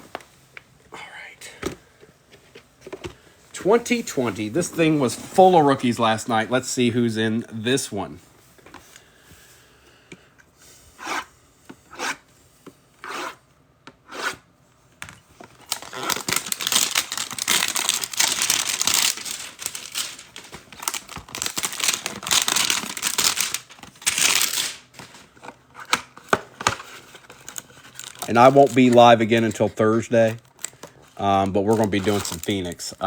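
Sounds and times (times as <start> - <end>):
wrapper tearing and crinkling: 15.5 - 29.6, 30.2 - 32.8.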